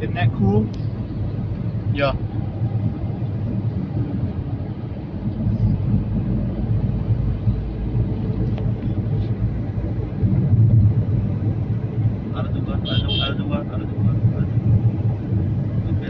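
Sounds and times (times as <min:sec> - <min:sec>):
truck driving: 0:00.0 - 0:16.0.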